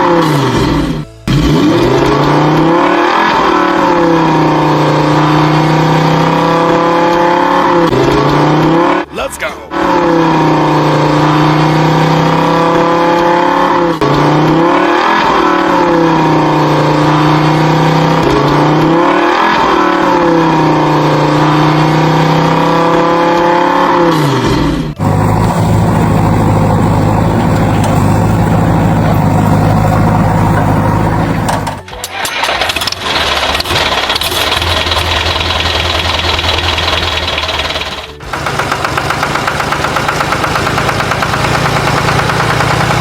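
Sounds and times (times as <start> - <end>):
vehicle engine revving: 0.0 - 43.0
low engine drone: 24.0 - 43.0.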